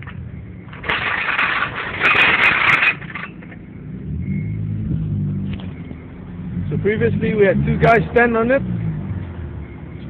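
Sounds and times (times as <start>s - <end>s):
vehicle engine humming: 2.6s - 10.0s.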